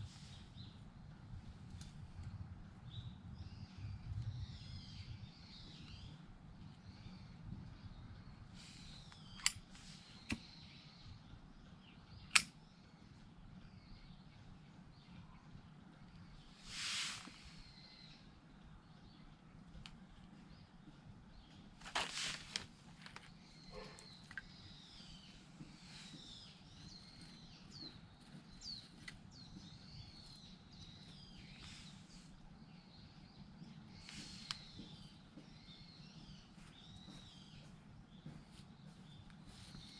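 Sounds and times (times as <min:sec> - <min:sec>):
sharp click: 0:09.1 - 0:09.6, 0:12.3 - 0:12.6
faint bird calls: 0:23.4 - 0:39.9.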